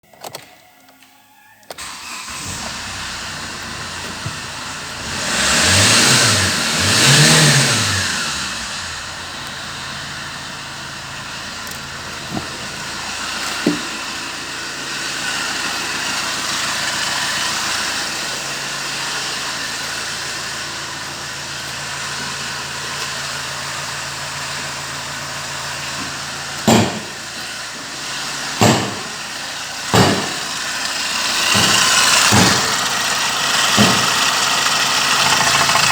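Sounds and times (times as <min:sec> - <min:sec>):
diesel car engine revving and idling: 0:01.8 - 0:35.9
sharp knocks: 0:26.7 - 0:27.2, 0:28.6 - 0:29.2, 0:29.9 - 0:30.6, 0:31.5 - 0:32.9, 0:33.8 - 0:34.2.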